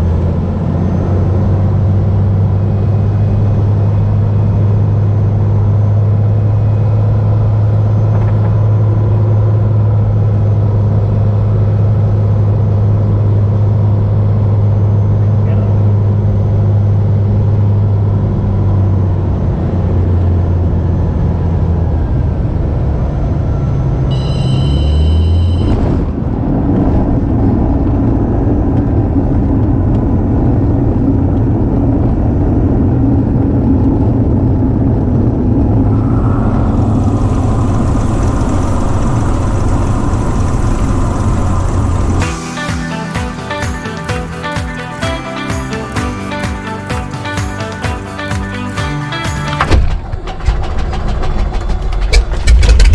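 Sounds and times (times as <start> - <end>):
piston engine and propeller droning: 0.0 - 52.9
brief high-pitched tone: 24.1 - 25.8.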